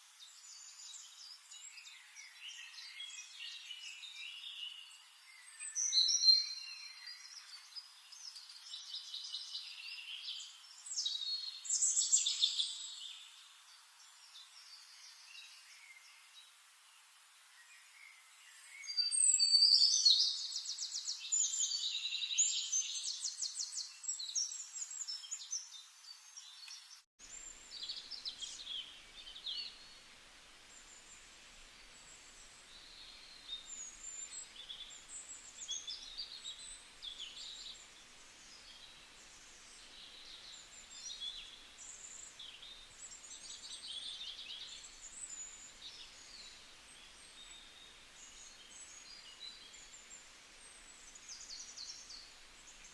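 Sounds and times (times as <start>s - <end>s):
faint background hiss: 0.0s - 52.9s
chorus of birds chirping: 17.6s - 52.9s
bird singing trilling phrases: 18.6s - 30.0s.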